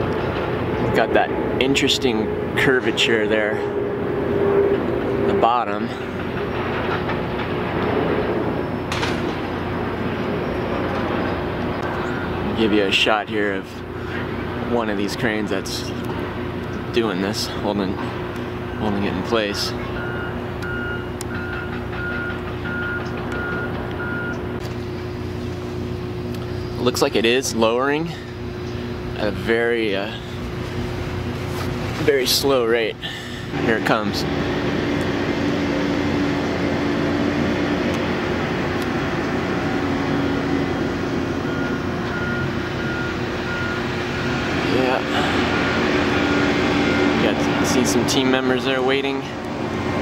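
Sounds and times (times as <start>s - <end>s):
diesel engine drone: 0.0s - 50.0s
reversing alarm beeping: 12.0s - 12.5s, 18.6s - 24.5s, 39.7s - 48.4s.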